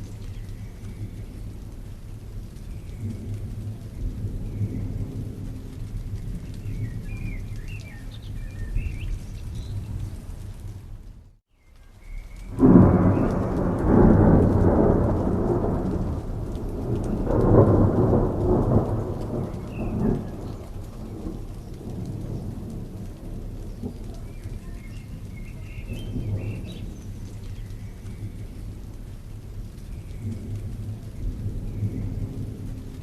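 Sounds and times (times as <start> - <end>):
steady rain: 0.0 - 33.0
thunder rolling: 12.5 - 33.0.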